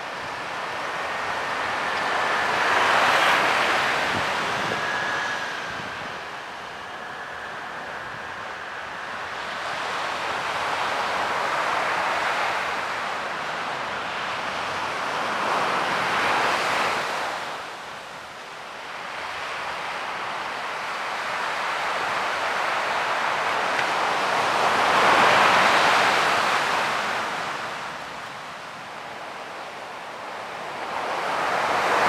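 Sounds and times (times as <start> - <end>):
ocean waves breaking: 0.0 - 13.5.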